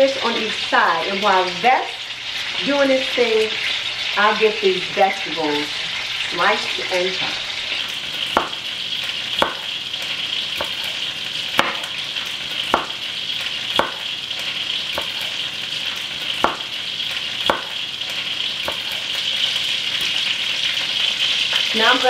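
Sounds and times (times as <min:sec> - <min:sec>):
chicken sizzling in oil: 0:00.0 - 0:22.0
knife chopping on cutting board: 0:08.3 - 0:08.6, 0:09.4 - 0:09.8, 0:10.6 - 0:12.0, 0:12.6 - 0:13.1, 0:13.7 - 0:14.1, 0:14.9 - 0:15.4, 0:16.4 - 0:16.8, 0:17.4 - 0:17.8, 0:18.6 - 0:19.0.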